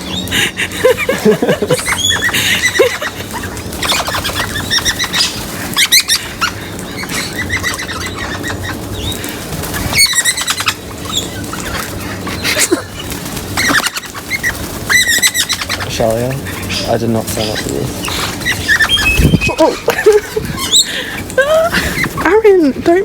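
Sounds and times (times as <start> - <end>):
parrots chirping: 0.0 - 23.0
wings flapping: 0.0 - 23.0.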